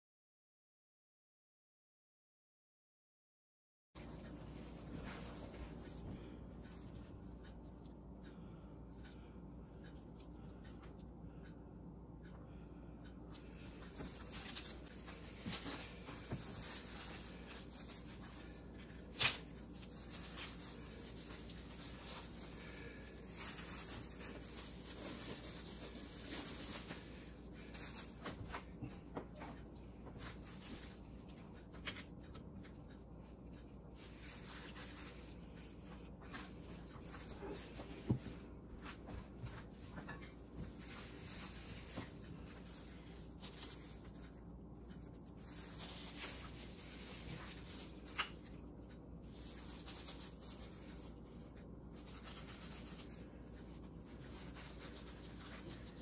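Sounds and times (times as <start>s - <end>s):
plastic packaging rustling: 4.0s - 8.0s, 13.3s - 28.8s, 34.0s - 38.6s, 39.5s - 56.0s.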